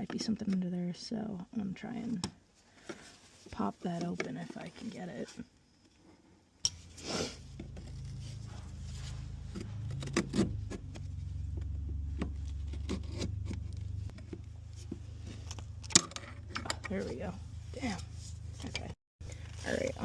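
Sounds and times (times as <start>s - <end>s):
low steady hum: 6.6s - 20.0s.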